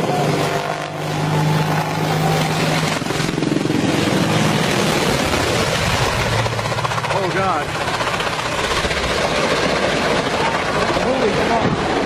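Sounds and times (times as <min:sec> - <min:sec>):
helicopter engine and rotor: 0:00.0 - 0:12.0.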